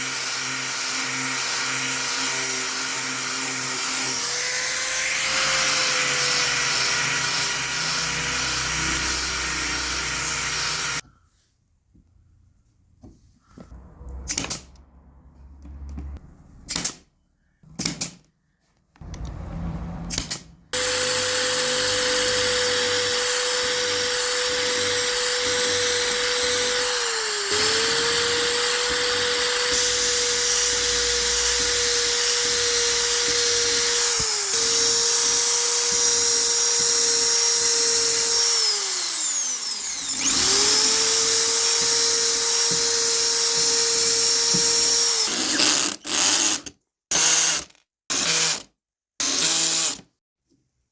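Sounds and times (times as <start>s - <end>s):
electric power tool running: 0.0s - 11.0s, 20.7s - 46.2s.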